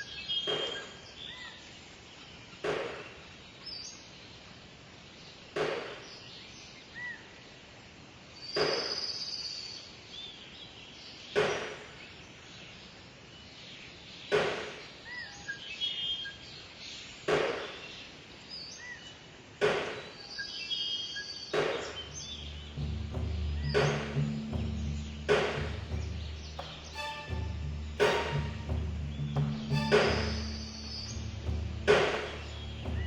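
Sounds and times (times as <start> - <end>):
low music: 22.0 - 33.0.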